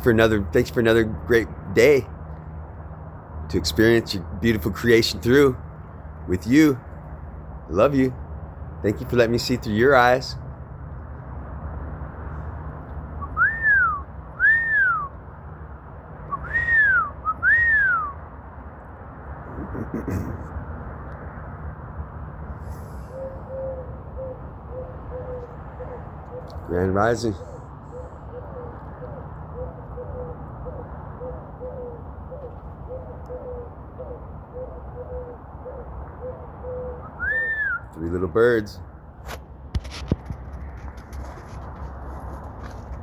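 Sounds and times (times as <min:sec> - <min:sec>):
whistling gliding notes: 0:13.2 - 0:15.1, 0:16.3 - 0:18.2, 0:37.0 - 0:37.9
pigeons cooing: 0:22.8 - 0:37.8.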